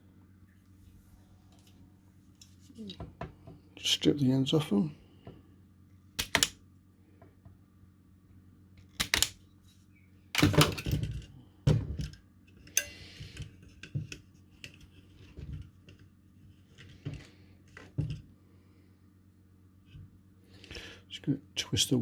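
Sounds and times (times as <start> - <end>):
wire strippers clicking and snipping: 6.2 - 6.6, 8.9 - 9.4.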